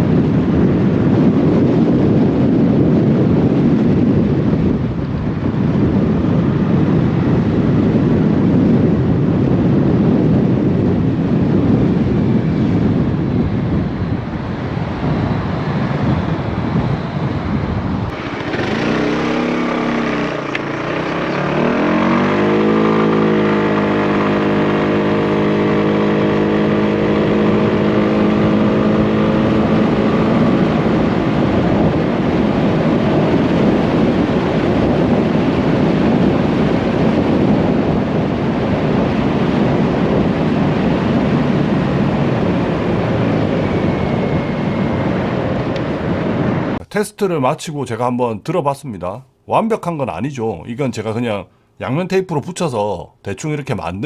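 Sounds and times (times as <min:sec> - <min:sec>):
wind buffeting microphone: 0:00.0 - 0:48.8
motorcycle engine accelerating: 0:18.1 - 0:32.5.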